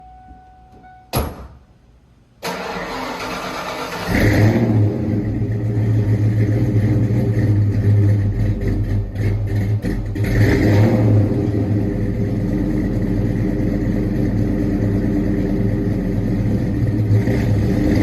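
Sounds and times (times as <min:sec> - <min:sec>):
sharp clunk: 0:00.7 - 0:01.7
car engine idling: 0:02.5 - 0:18.0.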